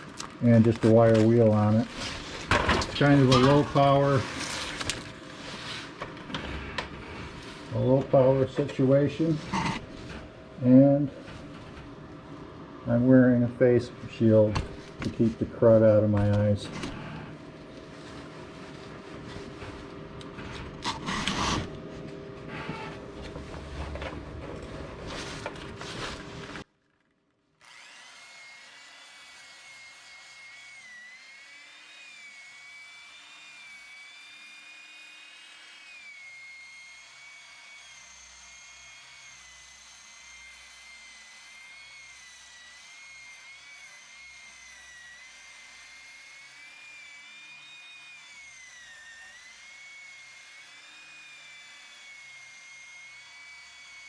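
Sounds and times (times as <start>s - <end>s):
electric drill wire wheel whine: 27.6s - 54.0s.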